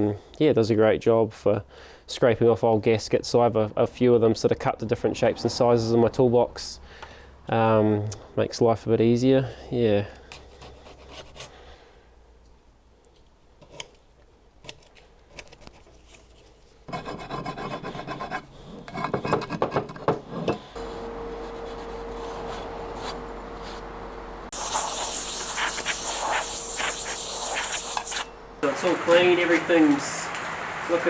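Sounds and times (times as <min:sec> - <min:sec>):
scraper scraping gasket material: 0:24.5 - 0:28.3
loud steady hiss: 0:24.5 - 0:31.0.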